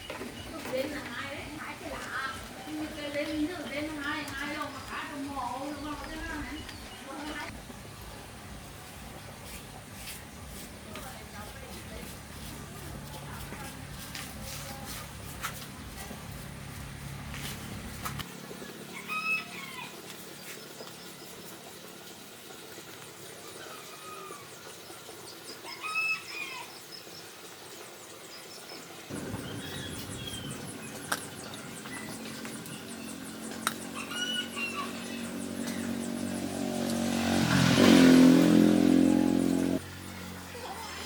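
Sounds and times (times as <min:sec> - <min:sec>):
chickens clucking: 0:33.6 - 0:36.2.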